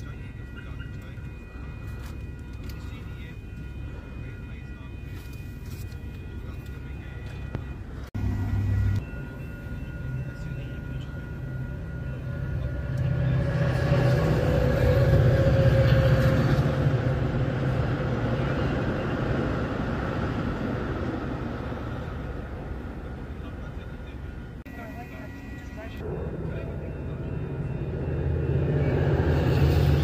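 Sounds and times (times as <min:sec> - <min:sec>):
steady mid-pitched tone: 0:00.0 - 0:30.0
train passing rumble: 0:00.0 - 0:30.0.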